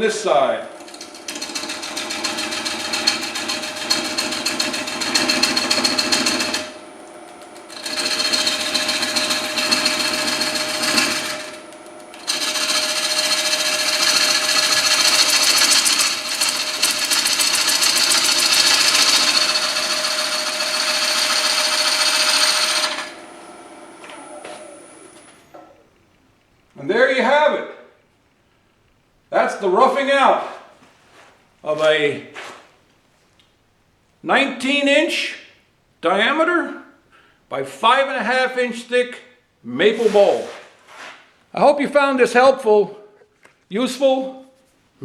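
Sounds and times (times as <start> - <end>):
turning tool cutting wood bowl: 0.0 - 25.5
wood lathe humming: 0.0 - 25.8.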